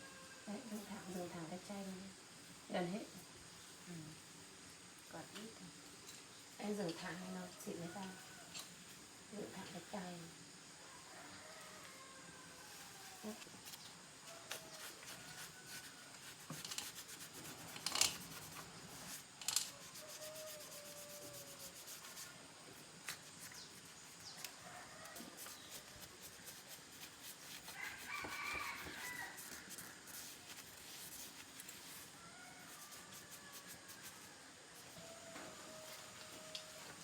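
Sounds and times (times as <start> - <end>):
rooster crowing: 0.0 - 0.6, 10.8 - 13.5, 19.6 - 21.9, 24.4 - 25.9, 27.5 - 30.3, 31.8 - 37.0.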